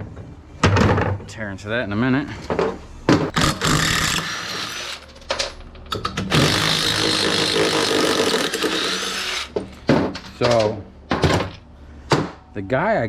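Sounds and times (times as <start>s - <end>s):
handheld power tool running: 3.3s - 5.1s, 6.3s - 9.6s.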